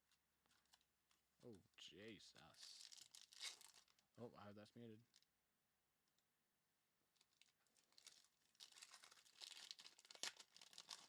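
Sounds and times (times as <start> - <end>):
wrappers crinkling and tearing: 2.4 - 4.0, 7.1 - 11.0.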